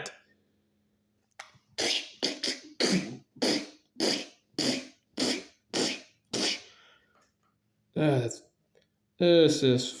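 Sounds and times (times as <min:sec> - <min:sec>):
person making breathy chh sounds: 0:01.8 - 0:07.0.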